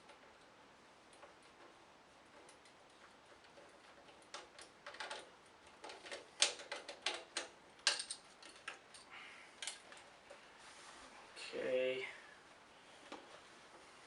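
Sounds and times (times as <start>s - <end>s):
hard objects clicking and knocking: 1.1s - 10.4s.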